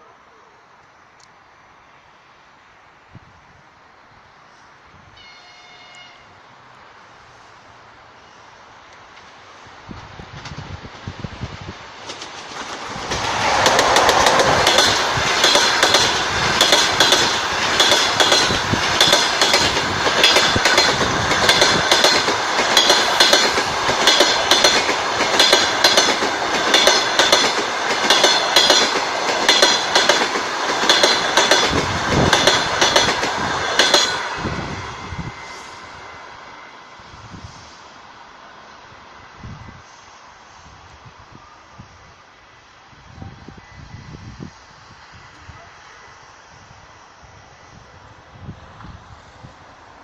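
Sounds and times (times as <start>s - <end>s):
train passing at speed: 0.0s - 50.0s
wheels clacking over rail joints: 12.0s - 34.4s.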